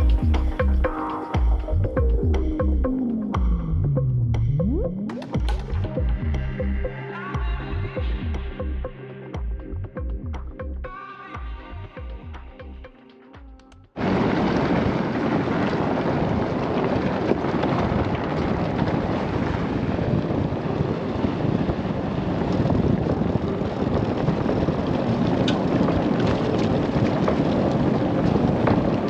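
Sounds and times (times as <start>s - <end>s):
wind on microphone: 14.0s - 29.0s
vehicle driving on dirt road: 15.6s - 29.0s.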